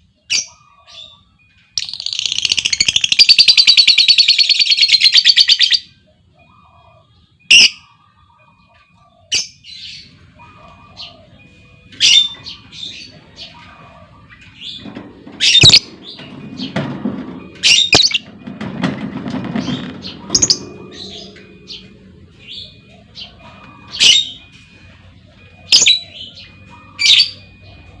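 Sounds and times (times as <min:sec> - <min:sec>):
lovebird chattering trill: 0:01.8 - 0:05.8, 0:20.1 - 0:24.5.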